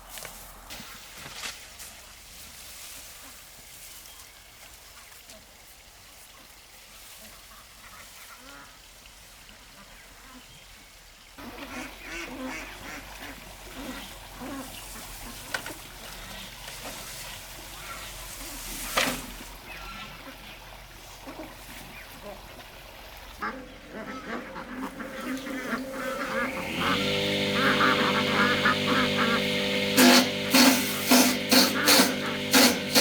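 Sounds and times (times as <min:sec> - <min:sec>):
flock of farm birds calling: 0:11.4 - 0:22.6, 0:23.3 - 0:29.6
sharp loud noise: 0:24.9 - 0:33.0.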